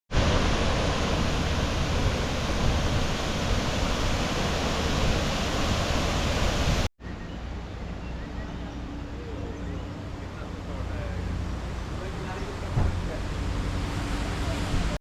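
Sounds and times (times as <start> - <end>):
waterfall rushing: 0.1 - 6.9.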